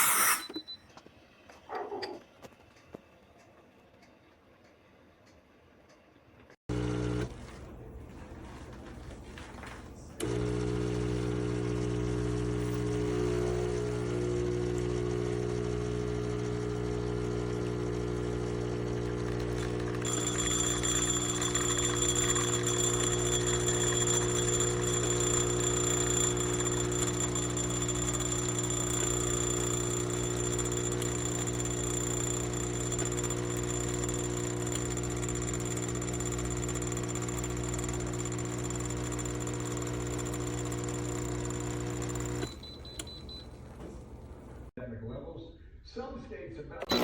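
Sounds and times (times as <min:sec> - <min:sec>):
espresso machine pump buzzing: 0:00.0 - 0:00.5, 0:06.7 - 0:07.5, 0:10.2 - 0:44.7.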